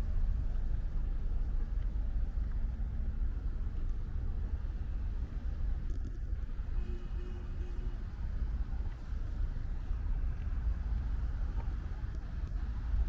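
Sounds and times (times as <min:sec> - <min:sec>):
steady low rumble: 0:00.0 - 0:06.8, 0:08.0 - 0:13.0.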